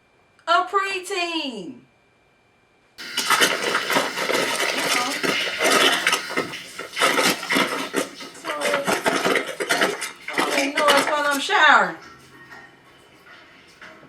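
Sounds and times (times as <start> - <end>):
hard objects clattering: 3.0 - 12.3.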